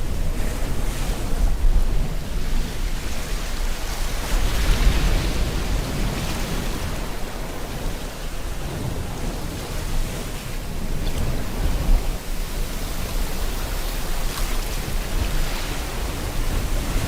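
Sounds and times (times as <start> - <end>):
ocean waves washing on shore: 0.0 - 17.0.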